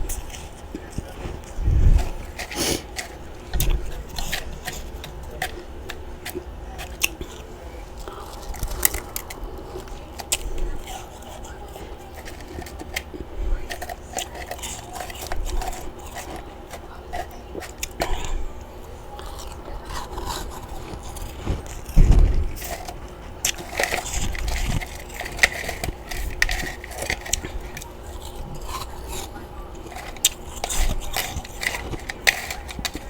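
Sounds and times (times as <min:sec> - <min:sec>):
frost being chewed crunching: 0:00.0 - 0:33.0
heavy low thump: 0:22.0 - 0:22.6.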